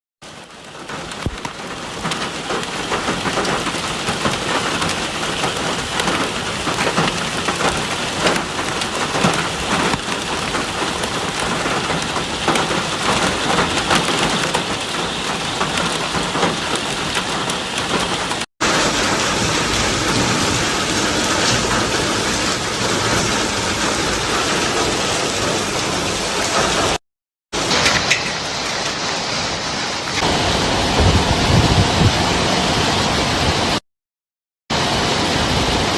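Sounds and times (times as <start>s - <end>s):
hailstones ticking on hard surfaces: 0.3s - 27.0s, 27.6s - 29.2s
heavy rain hissing: 0.3s - 27.0s, 27.6s - 33.8s, 34.7s - 35.9s.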